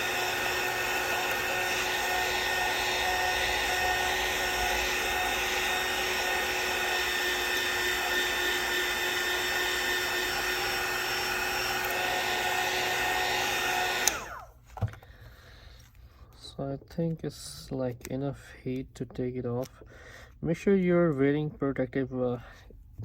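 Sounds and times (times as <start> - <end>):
heat gun blowing with whine: 0.0 - 14.9
heat gun switch click: 14.0 - 14.3.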